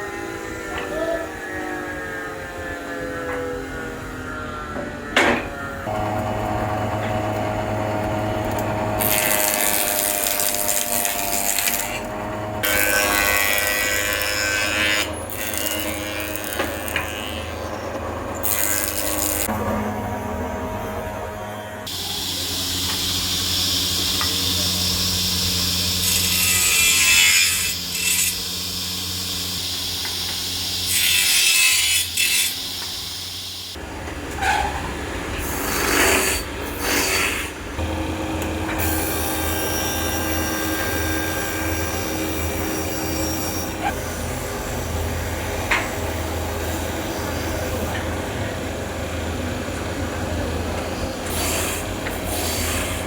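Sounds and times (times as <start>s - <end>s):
woodworking machine motor hum: 0.0s - 34.3s, 37.7s - 53.0s.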